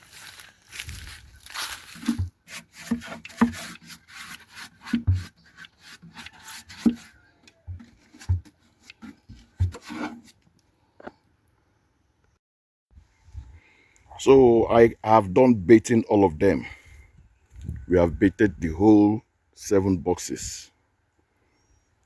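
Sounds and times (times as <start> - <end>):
wax rubbing on wood: 1.4 - 10.2.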